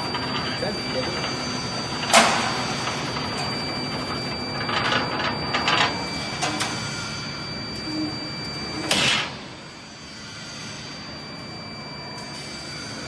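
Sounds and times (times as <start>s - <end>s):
machine whirring with whine: 0.0s - 13.0s.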